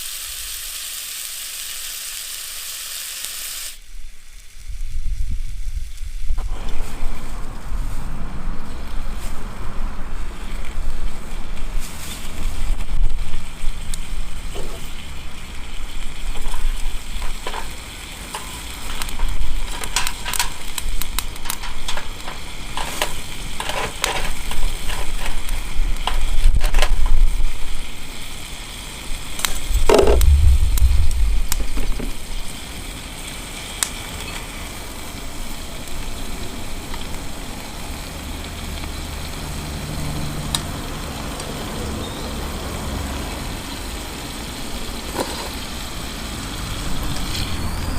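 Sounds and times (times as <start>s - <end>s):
fire crackles and pops: 0.0s - 47.9s
meat sizzling on a grill: 0.0s - 47.9s
loud low rumble: 6.4s - 11.2s, 29.6s - 32.5s.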